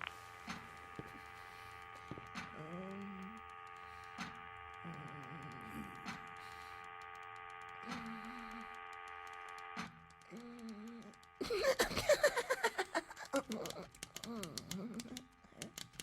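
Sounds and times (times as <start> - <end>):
wavering low electronic tones: 0.0 - 11.4
steady electrical hum: 0.0 - 16.0.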